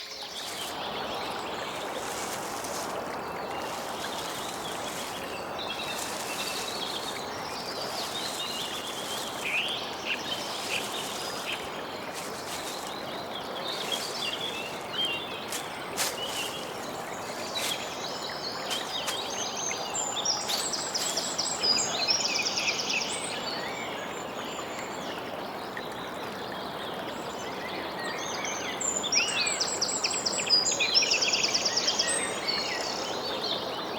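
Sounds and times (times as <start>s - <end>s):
background hiss: 0.0s - 22.6s
birds chirping: 0.0s - 24.0s.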